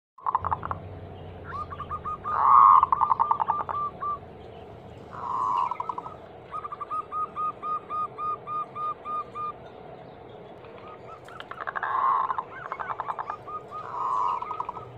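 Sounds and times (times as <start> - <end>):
dove cooing: 1.4 - 4.4, 5.0 - 9.6, 10.6 - 14.9.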